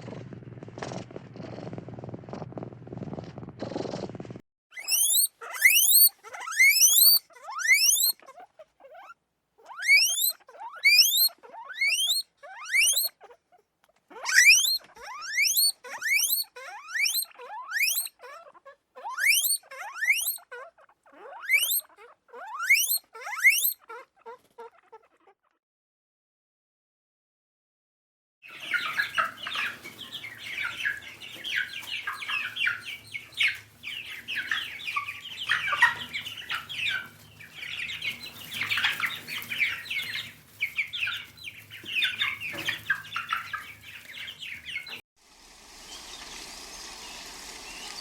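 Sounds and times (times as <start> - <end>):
animal high squeaks: 4.7 - 25.5.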